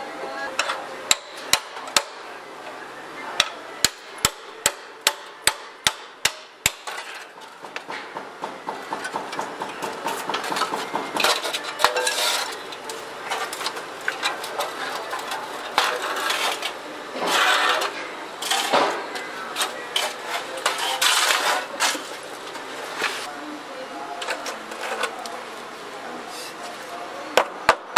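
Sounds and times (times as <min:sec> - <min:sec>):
metal tools tapping sheet metal: 0:00.6 - 0:02.2, 0:03.4 - 0:22.2
metal scraping: 0:09.0 - 0:23.3.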